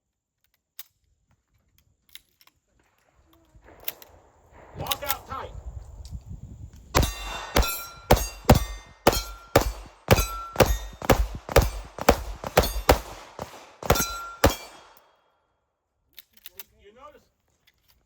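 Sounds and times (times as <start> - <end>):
steel targets ringing: 7.0 - 15.0
pistol shots: 7.0 - 15.1.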